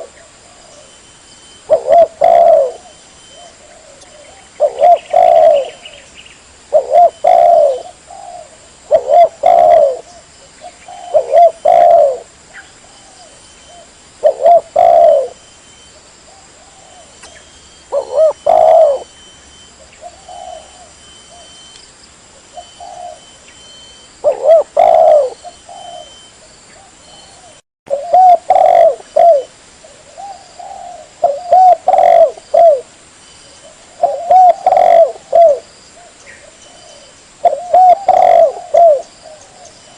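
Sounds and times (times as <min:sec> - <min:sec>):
dove cooing: 0:00.0 - 0:01.0, 0:01.6 - 0:06.1, 0:06.7 - 0:21.7, 0:22.4 - 0:32.9, 0:33.5 - 0:39.9.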